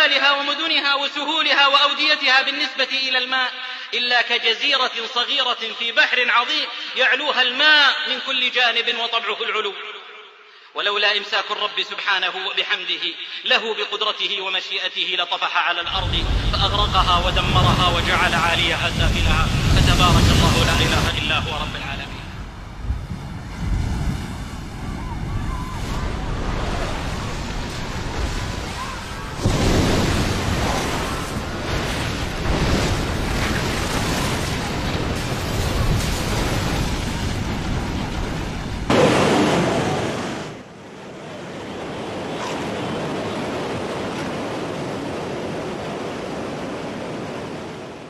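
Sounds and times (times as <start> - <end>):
ocean waves breaking on shore: 15.9 - 48.0.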